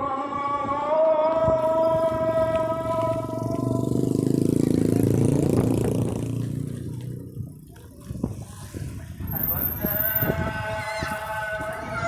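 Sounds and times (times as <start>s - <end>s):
vehicle engine passing by: 2.0s - 10.3s.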